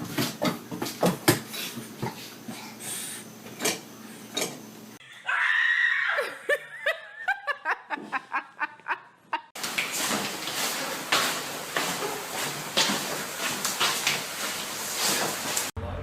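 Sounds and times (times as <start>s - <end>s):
high-pitched laughter: 6.0s - 9.5s.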